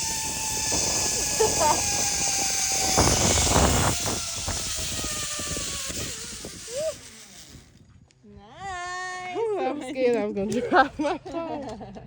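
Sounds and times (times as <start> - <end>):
zip-line pulleys whining on cable: 0.0 - 7.9
wind buffeting microphone: 0.0 - 8.8.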